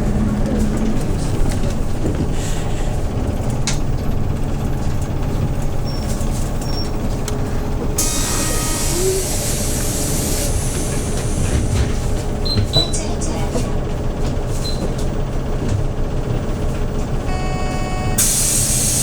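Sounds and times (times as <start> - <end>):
bus engine running: 0.0 - 19.0
compressed air hiss: 8.0 - 11.3, 18.2 - 19.0.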